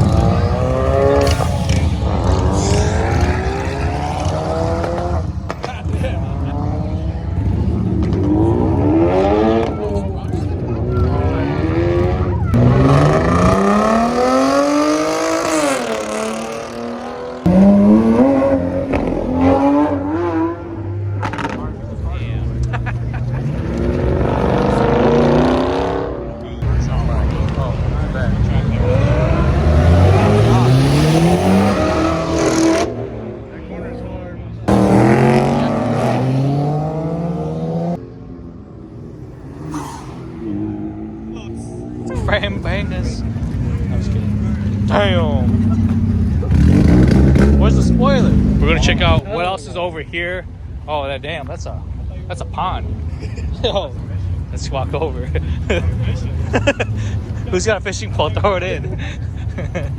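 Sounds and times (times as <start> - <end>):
car engines revving: 0.0 - 59.9
quieter engine sound: 26.6 - 50.9.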